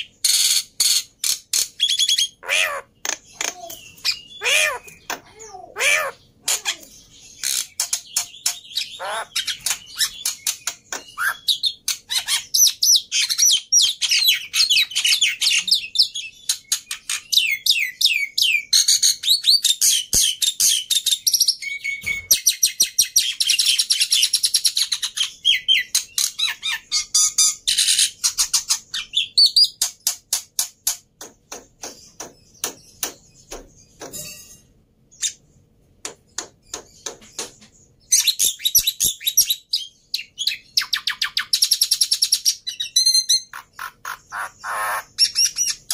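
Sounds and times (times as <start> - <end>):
bird chattering with whistles: 38.1 - 45.9.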